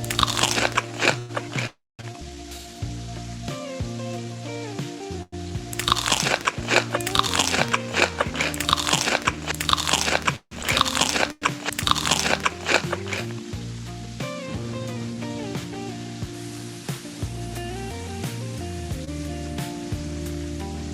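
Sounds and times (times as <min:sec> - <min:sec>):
crunchy chewing of crisp food: 0:00.0 - 0:01.8, 0:05.8 - 0:13.4.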